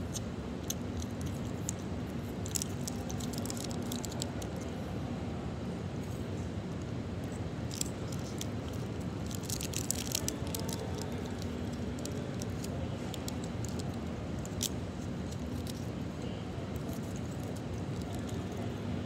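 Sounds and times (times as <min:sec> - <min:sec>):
low room hum: 0:00.0 - 0:19.0
chocolate crackling when bitten: 0:07.7 - 0:16.0.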